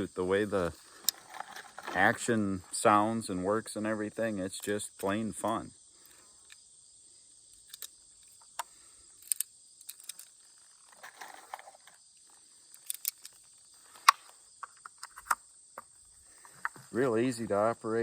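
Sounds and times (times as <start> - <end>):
crickets chirping: 0.0 - 18.0
brief rustle: 0.9 - 2.4, 9.2 - 15.4.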